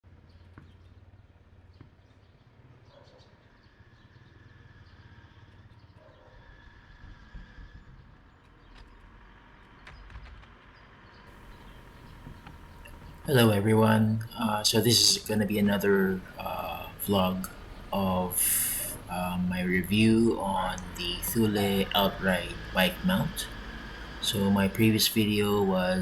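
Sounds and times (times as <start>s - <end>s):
low steady rumble: 11.4s - 26.0s.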